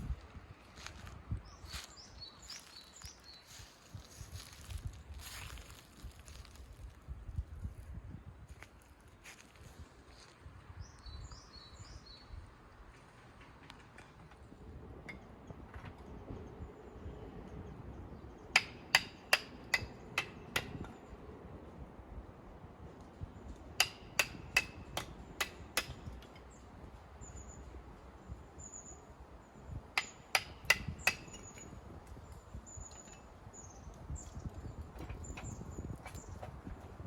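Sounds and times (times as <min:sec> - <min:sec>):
hammer striking metal tent pegs: 0:18.5 - 0:21.0, 0:23.8 - 0:26.2, 0:30.0 - 0:31.6.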